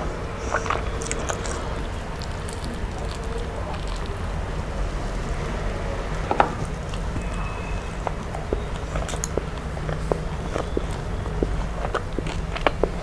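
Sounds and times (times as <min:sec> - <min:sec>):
steady low hum: 0:00.0 - 0:13.0
person chewing: 0:00.4 - 0:04.6, 0:06.5 - 0:13.0
wet clicks and smacks: 0:00.6 - 0:04.4, 0:06.6 - 0:13.0.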